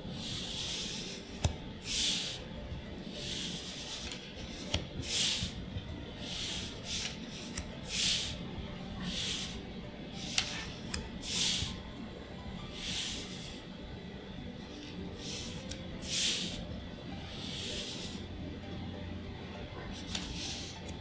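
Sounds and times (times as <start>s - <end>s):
cards sliding swish: 0.2s - 2.4s, 3.1s - 5.6s, 6.2s - 9.6s, 10.2s - 11.8s, 12.8s - 13.7s, 14.8s - 16.6s, 17.3s - 18.3s, 20.0s - 21.0s
card edges clicking: 0.7s - 2.4s, 6.4s - 8.4s, 20.0s - 21.0s.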